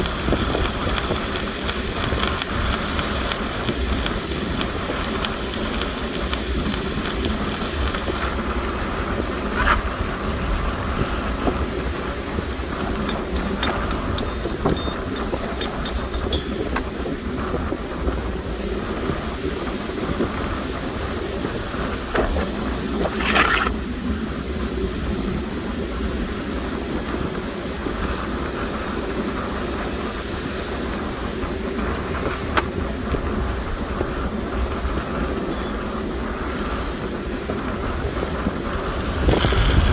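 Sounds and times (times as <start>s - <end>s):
welding arc crackling: 0.0s - 8.8s, 11.2s - 36.4s, 37.7s - 39.9s.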